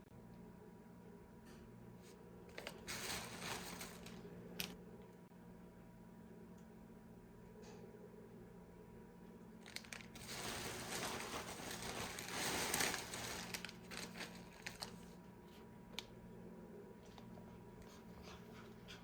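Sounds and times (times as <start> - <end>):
packaging crinkling and rustling: 2.5 - 4.8, 9.6 - 15.2.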